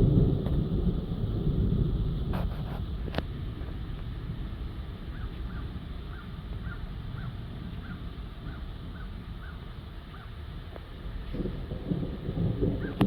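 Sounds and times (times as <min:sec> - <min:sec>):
low rumble of wind: 0:00.0 - 0:13.0.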